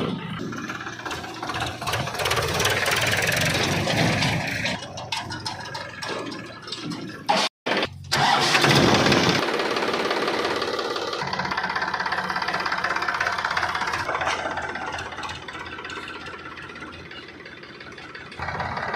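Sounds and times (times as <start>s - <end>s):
heavy vehicle engine running: 0.0s - 18.9s.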